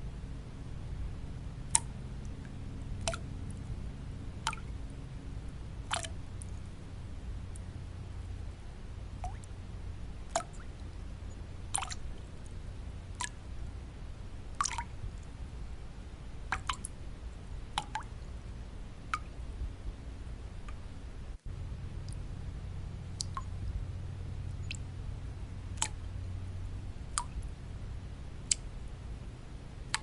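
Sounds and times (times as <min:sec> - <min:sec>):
steady white noise: 0:00.0 - 0:30.0
water drops dripping: 0:01.6 - 0:03.7, 0:04.4 - 0:04.7, 0:05.8 - 0:06.6, 0:09.2 - 0:09.6, 0:10.3 - 0:11.0, 0:11.7 - 0:12.5, 0:13.1 - 0:13.5, 0:14.5 - 0:15.3, 0:16.4 - 0:17.0, 0:17.7 - 0:18.2, 0:19.1 - 0:19.4, 0:21.9 - 0:22.3, 0:23.1 - 0:23.6, 0:24.4 - 0:25.0, 0:25.7 - 0:26.2, 0:27.1 - 0:27.5, 0:28.4 - 0:28.7.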